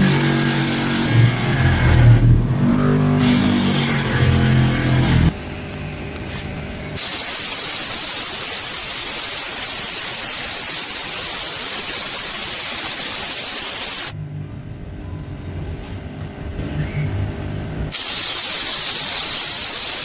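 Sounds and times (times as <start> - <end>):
pressurised jet hissing: 7.0 - 14.2, 17.9 - 20.0.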